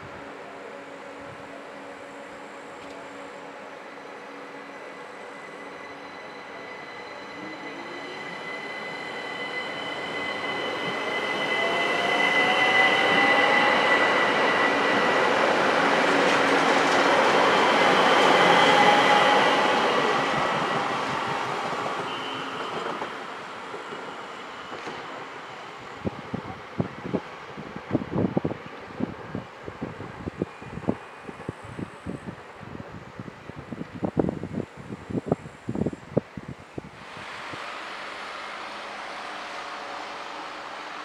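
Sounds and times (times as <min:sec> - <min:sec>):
train wheel and rail noise: 0:00.0 - 0:41.0
electric train motor whine: 0:36.9 - 0:41.0.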